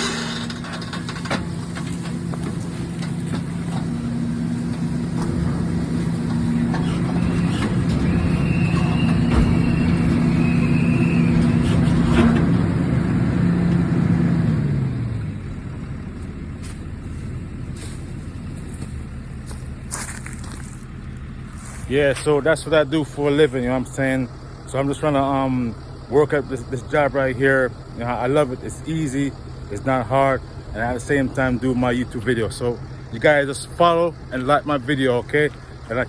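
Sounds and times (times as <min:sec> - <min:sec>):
hydraulic whine: 0:00.0 - 0:16.0
truck engine running: 0:00.0 - 0:36.0.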